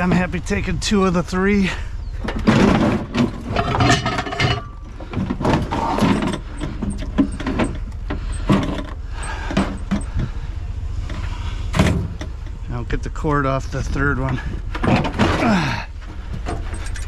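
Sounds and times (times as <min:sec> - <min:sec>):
steady low rumble: 0:00.0 - 0:17.0
metal appliances knocking and clattering: 0:02.2 - 0:08.9.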